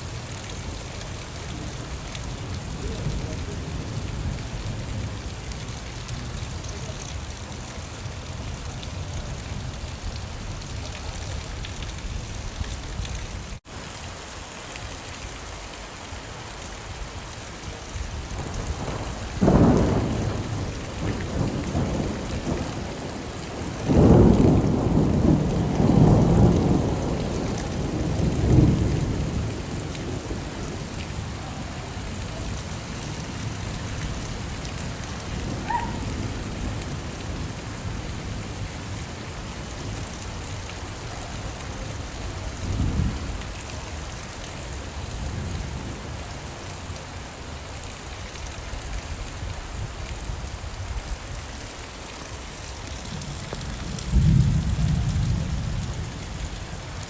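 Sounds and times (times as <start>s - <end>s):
heavy rain falling: 0.0s - 57.0s
thunder rumbling: 18.1s - 38.9s, 53.0s - 56.6s.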